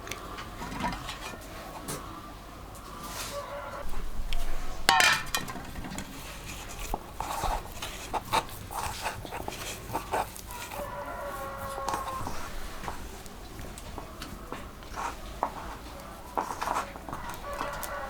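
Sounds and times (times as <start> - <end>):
kitchen utensils clinking: 4.4 - 10.9.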